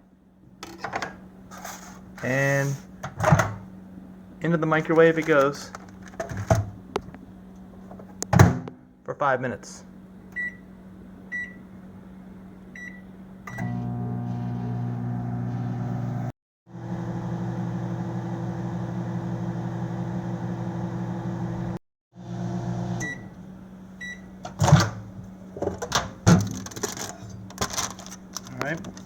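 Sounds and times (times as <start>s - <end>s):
microwave door clicks and knocks: 8.2s - 8.8s
microwave oven humming: 9.9s - 28.7s
microwave beeps: 10.3s - 10.7s, 11.3s - 11.6s, 12.7s - 16.3s, 22.9s - 23.4s, 24.0s - 24.4s
microwave keypad beeping: 10.4s - 10.6s.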